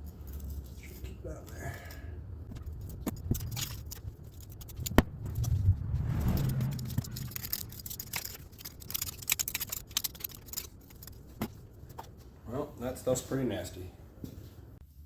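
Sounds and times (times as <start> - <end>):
metal tools clicking and scraping: 7.2 - 12.1.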